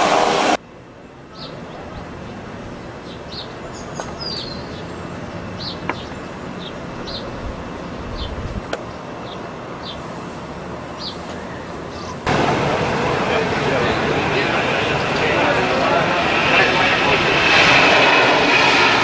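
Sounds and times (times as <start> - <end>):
small birds chirping: 1.1 - 12.3.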